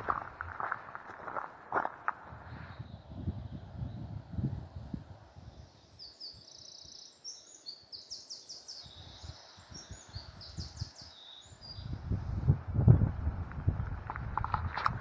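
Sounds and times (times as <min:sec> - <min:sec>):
faint low wind rumble: 0:00.0 - 0:15.0
songbird singing with trills: 0:05.5 - 0:12.0.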